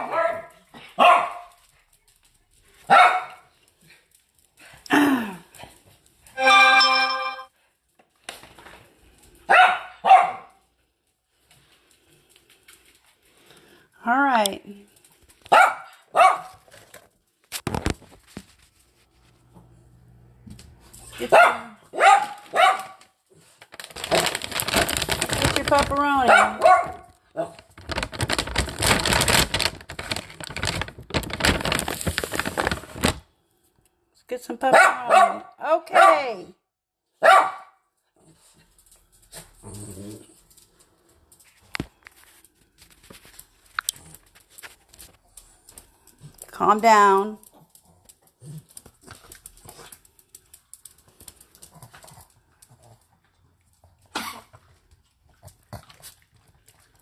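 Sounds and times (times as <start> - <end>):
small dog barking: 0.0 - 1.5, 2.9 - 3.5, 9.5 - 10.6, 15.5 - 16.6, 21.2 - 23.0, 26.3 - 27.6, 34.7 - 36.3, 37.2 - 37.8
treat wrapper clicks and rustles: 16.5 - 18.9, 22.3 - 33.4, 40.3 - 46.6, 47.4 - 54.7.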